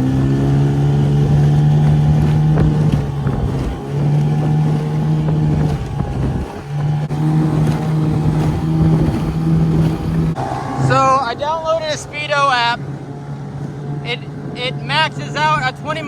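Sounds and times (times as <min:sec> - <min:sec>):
outboard motor drone: 0:00.0 - 0:16.0.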